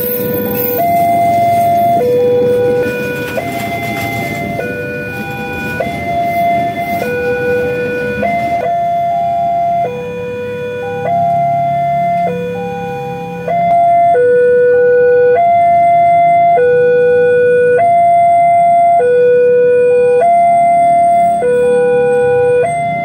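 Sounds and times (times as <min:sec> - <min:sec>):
train engine rumble: 0:00.0 - 0:09.8
two-tone electronic warning signal: 0:00.0 - 0:23.0.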